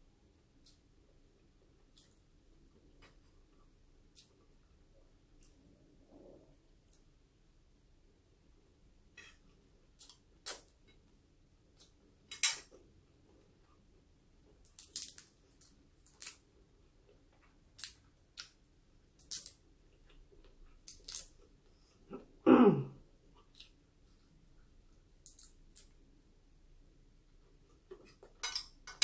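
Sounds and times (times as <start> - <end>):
person chewing food: 9.1 - 22.4
mouth clicks and crackles: 10.0 - 11.0, 17.3 - 22.2, 25.2 - 26.1.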